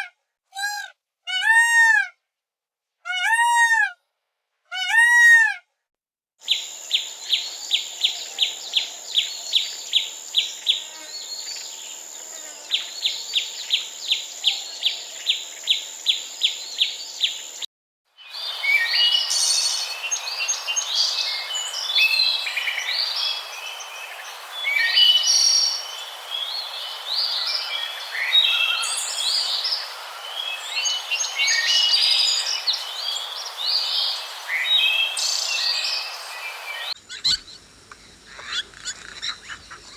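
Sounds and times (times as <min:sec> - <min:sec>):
birds chirping chorus: 0:18.2 - 0:39.9.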